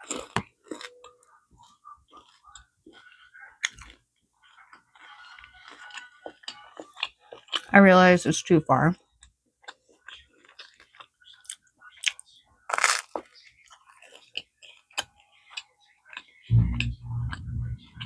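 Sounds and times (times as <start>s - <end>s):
chewing clicks: 0.0s - 7.7s
crunching bite of bread: 12.7s - 13.3s
low hum: 16.5s - 18.0s.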